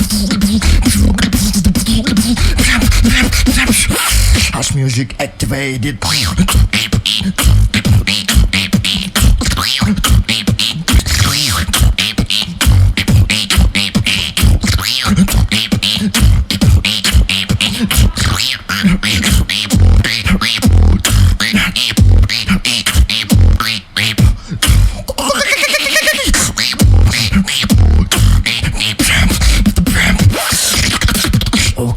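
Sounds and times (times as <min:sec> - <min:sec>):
beatboxing: 0:00.0 - 0:31.9.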